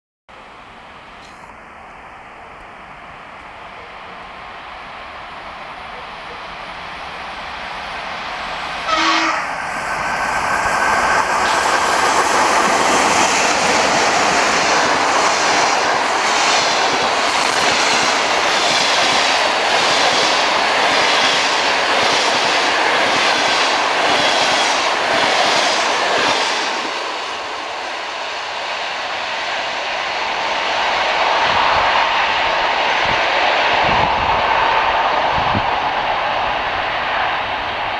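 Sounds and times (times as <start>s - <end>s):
train horn toot: 8.8s - 9.6s
train wheels clattering on rails: 9.8s - 27.2s.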